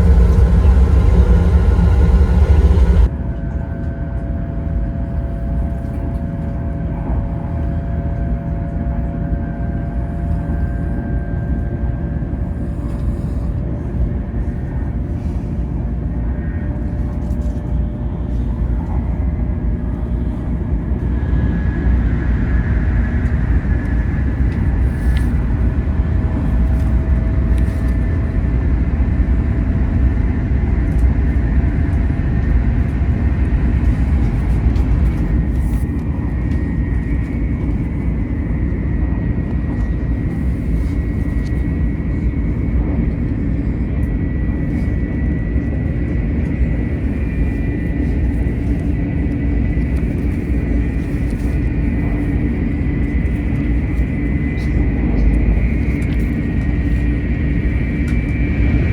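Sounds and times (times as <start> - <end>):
train interior rumble: 0.0 - 58.9.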